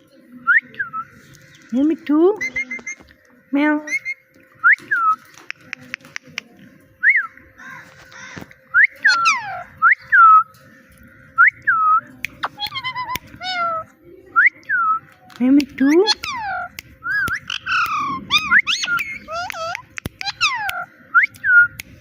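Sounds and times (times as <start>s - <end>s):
parrot whistling: 8.7s - 10.4s, 16.0s - 21.3s
parrot meow-like calls: 9.0s - 9.7s, 17.5s - 20.9s
sharp clicks: 19.4s - 22.0s.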